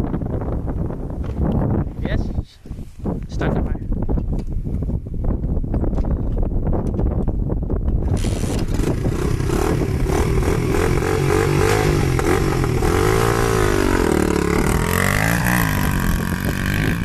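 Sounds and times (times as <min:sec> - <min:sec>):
motorbike engine revving: 0:08.0 - 0:17.0.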